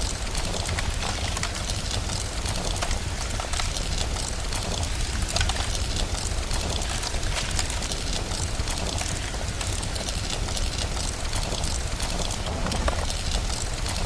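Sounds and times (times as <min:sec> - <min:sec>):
fire crackling and popping: 0:00.0 - 0:14.0
steady rain: 0:00.0 - 0:14.0
deep rumble: 0:10.8 - 0:14.0.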